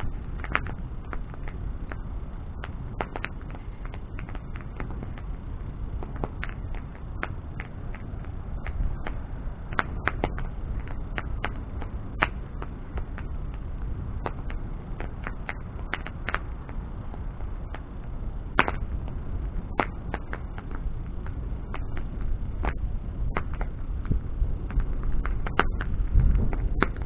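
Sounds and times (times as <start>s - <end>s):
bonfire crackling and popping: 0.0s - 27.0s
low steady fire rumble: 0.0s - 27.0s.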